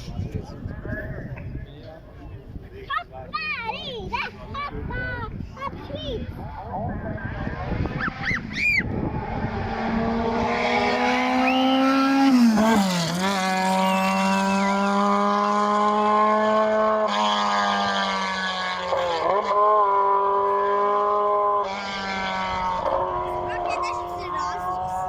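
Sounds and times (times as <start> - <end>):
race car engine high revs: 7.2 - 25.0.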